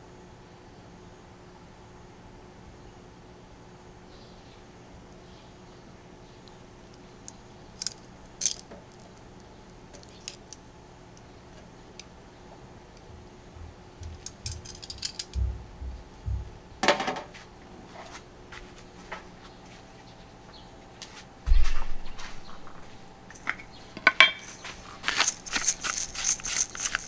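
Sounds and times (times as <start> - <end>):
metal utensils clicking and clinking: 7.8 - 9.2, 9.9 - 10.6, 14.0 - 15.4, 23.3 - 27.0
metallic clatter with ring: 7.8 - 9.2, 14.0 - 15.4, 22.6 - 27.0
dull thumps: 13.1 - 17.4.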